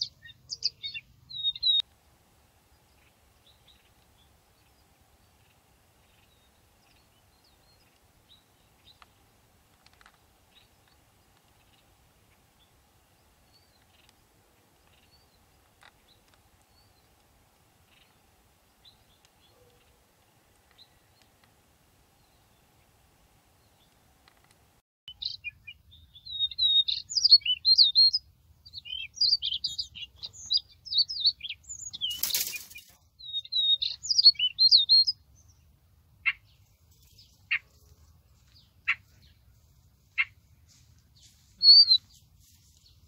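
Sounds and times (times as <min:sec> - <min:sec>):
faint bird chirps: 0:00.0 - 0:01.9, 0:25.1 - 0:43.0
faint steady hum: 0:01.1 - 0:24.8.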